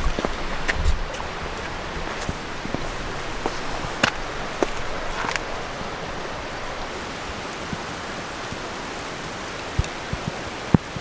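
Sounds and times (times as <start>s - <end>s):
steady rain falling: 0.0s - 11.0s
water drops tapping: 7.6s - 11.0s.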